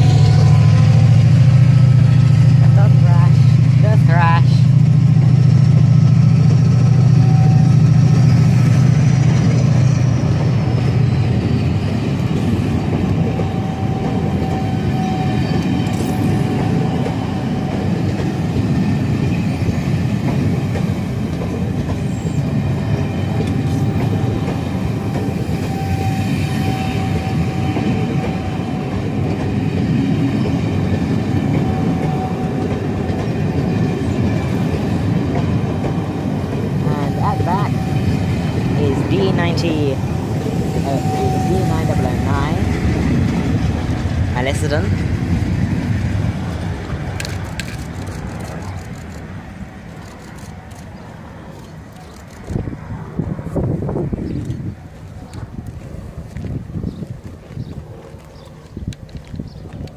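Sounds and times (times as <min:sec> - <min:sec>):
low drone: 0:00.0 - 0:18.5
train wheels clattering on rails: 0:00.0 - 0:52.7
faint high wheel squeals: 0:07.0 - 0:12.0, 0:13.1 - 0:18.0, 0:24.9 - 0:28.8, 0:40.6 - 0:42.3.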